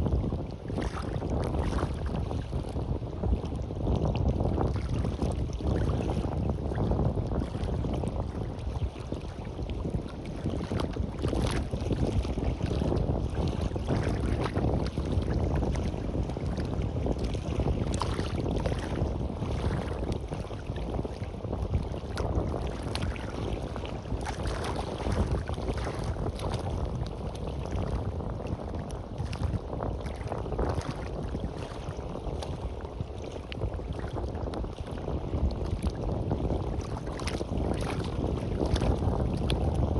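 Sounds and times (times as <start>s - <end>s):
sea waves washing on beach: 0.0s - 39.9s
wind buffeting microphone: 0.0s - 39.9s.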